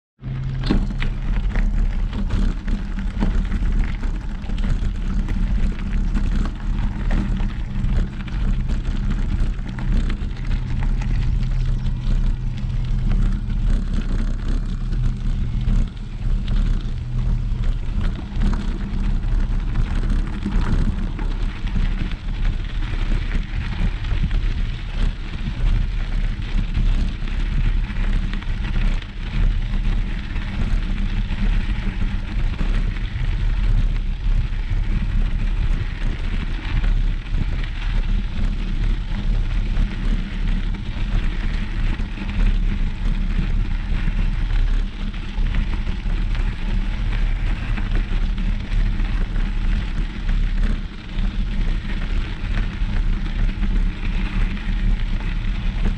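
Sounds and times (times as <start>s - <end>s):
held low tones: 0.2s - 27.7s
low engine-like hum: 0.2s - 55.9s.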